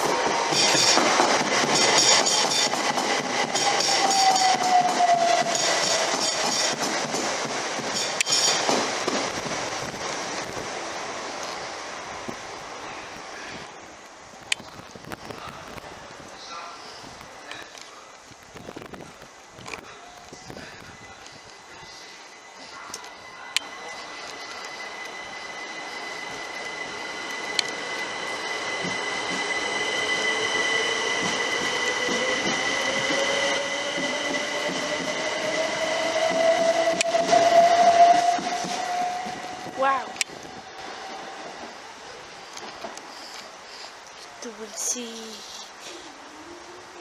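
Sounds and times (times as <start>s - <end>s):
train wheels clattering: 0.0s - 10.6s, 22.6s - 41.8s
falling whine: 18.3s - 43.7s.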